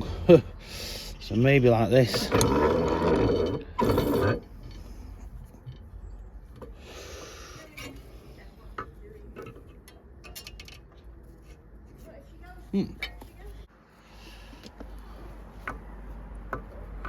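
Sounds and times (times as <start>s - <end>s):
small metal ticks and clicks: 8.8s - 11.1s.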